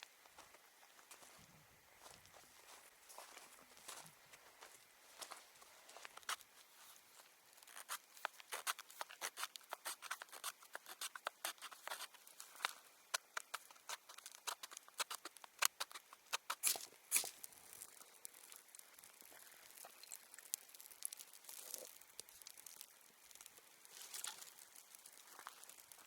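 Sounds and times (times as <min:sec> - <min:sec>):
rapid crackling and clicking: 0:07.6 - 0:26.0.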